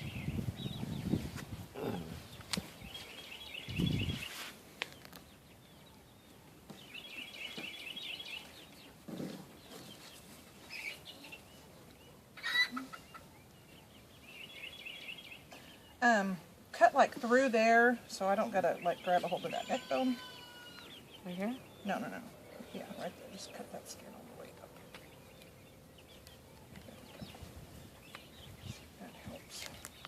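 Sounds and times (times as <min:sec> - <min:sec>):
poultry calling: 0:12.4 - 0:13.4, 0:18.8 - 0:24.7.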